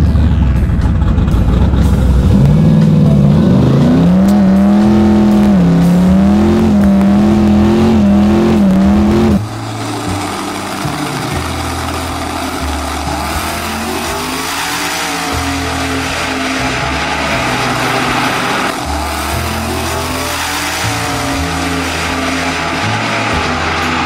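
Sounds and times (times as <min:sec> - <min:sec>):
drag car engine accelerating: 0:00.0 - 0:24.0.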